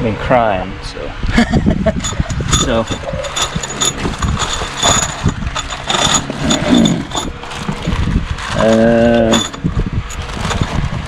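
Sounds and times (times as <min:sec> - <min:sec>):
steady pitched hum: 0:00.0 - 0:11.0
metal tools clinking: 0:01.9 - 0:10.8.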